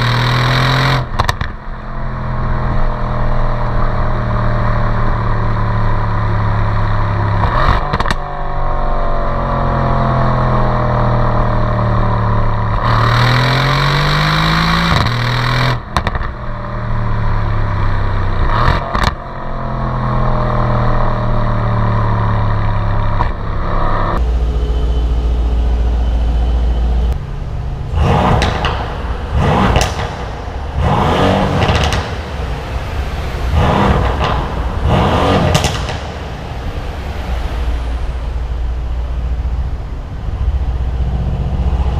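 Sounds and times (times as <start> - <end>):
car engine revving: 0.0 - 41.9
exhaust cracks: 22.6 - 41.9.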